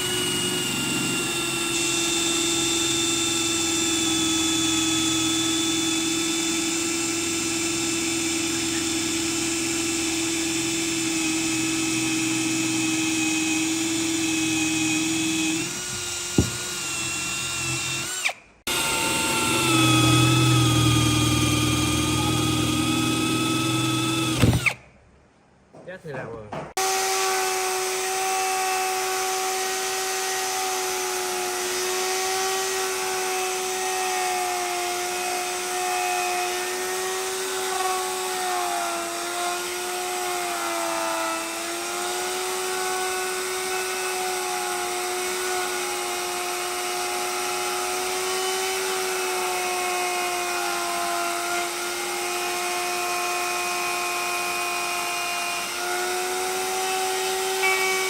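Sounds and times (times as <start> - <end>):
power tool whining: 0.0 - 24.8, 26.8 - 58.0.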